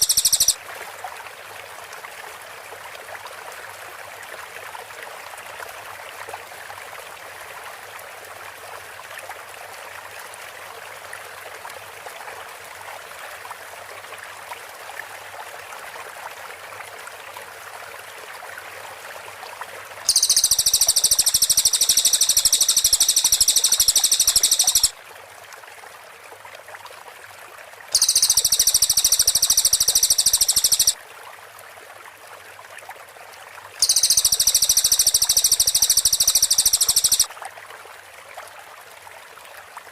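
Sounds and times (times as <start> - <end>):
songbird rapid high bursts: 0.0 - 0.6, 20.1 - 24.9, 28.0 - 31.0, 33.8 - 37.3
steady water-like hiss: 0.0 - 1.8, 19.8 - 24.9, 28.0 - 31.0, 33.8 - 37.3.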